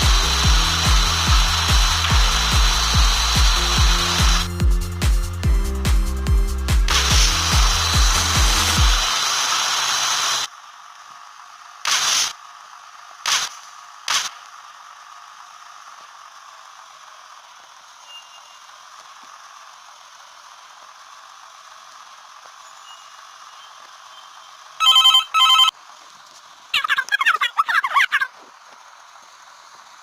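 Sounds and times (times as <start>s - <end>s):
short bursts of noise: 11.8s - 12.4s, 13.2s - 14.6s
electronic ringing tones: 24.2s - 25.7s
fast warbling chirp: 26.7s - 28.3s.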